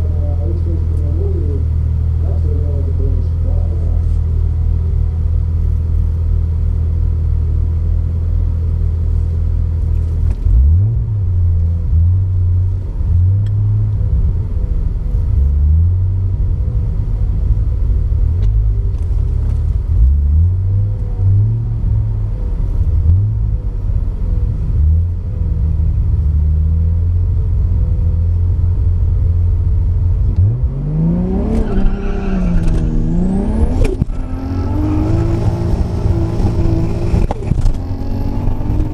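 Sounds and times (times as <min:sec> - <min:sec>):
car engine idling: 0:00.0 - 0:30.4
car engine accelerating hard: 0:00.0 - 0:38.9.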